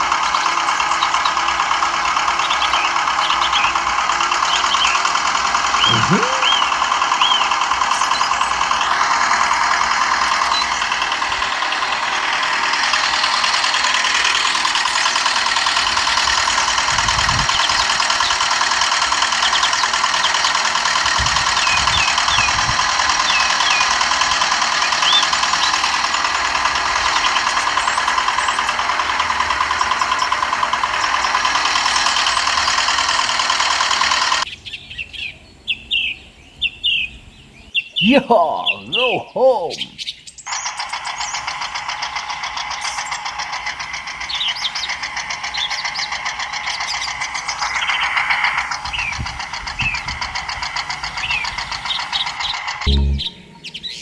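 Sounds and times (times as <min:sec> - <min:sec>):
birds chirping: 0:00.0 - 0:13.0, 0:19.2 - 0:28.9, 0:34.4 - 0:54.0.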